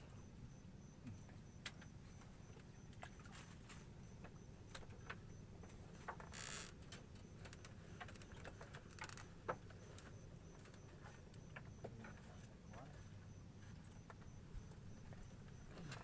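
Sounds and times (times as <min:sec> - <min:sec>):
low background noise: 0:00.0 - 0:16.0
faint small clicks and knocks: 0:01.0 - 0:12.9.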